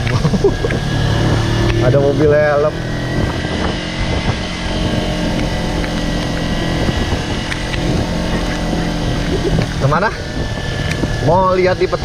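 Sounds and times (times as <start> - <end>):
motorcycle engine running: 0.0 - 12.0
road noise: 0.0 - 12.0
wind noise: 0.0 - 12.0.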